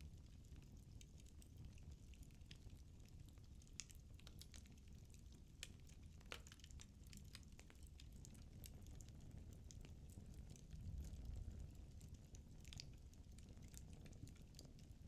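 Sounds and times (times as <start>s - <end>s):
low rumble of flames: 0.2s - 15.0s
firewood crackling and popping: 3.5s - 10.7s.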